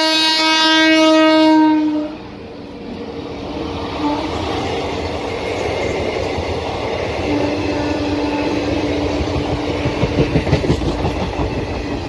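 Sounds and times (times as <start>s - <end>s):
locomotive horn: 0.0s - 2.3s, 4.0s - 4.5s, 7.3s - 9.2s
passenger coaches rumbling and rattling: 2.0s - 12.0s.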